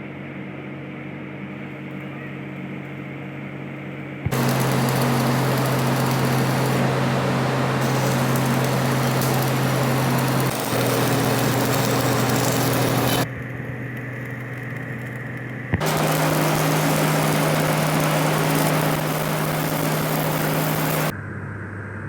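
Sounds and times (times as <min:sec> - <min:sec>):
motor hum: 0:04.2 - 0:21.1
loud hiss: 0:04.3 - 0:13.3, 0:15.8 - 0:21.1.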